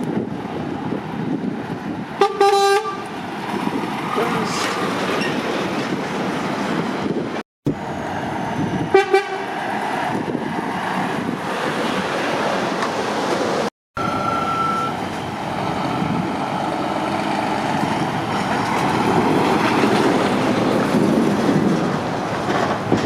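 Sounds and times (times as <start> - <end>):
traffic and engine noise: 0.0 - 23.0
vehicle horn toots: 2.2 - 3.1, 8.9 - 9.4.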